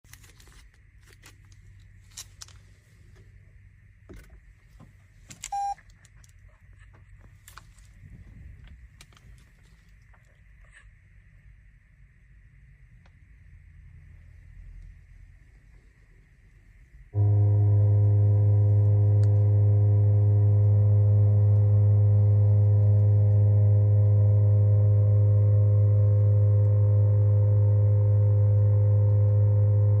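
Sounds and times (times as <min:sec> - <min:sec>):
faint steady low hum: 0:00.1 - 0:30.0
car start chime beep: 0:05.5 - 0:05.8
car engine droning: 0:16.8 - 0:30.0.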